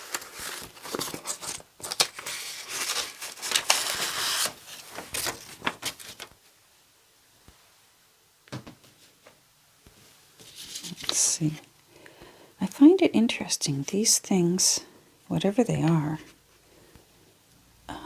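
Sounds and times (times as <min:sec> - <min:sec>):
paper rustling and crinkling: 0:00.0 - 0:06.4, 0:10.4 - 0:11.6.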